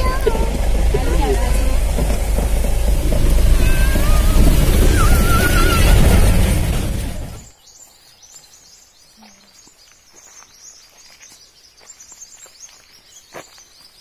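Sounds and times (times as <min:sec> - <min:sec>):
birds chirping: 0:00.0 - 0:14.0
footsteps on grass: 0:09.4 - 0:14.0.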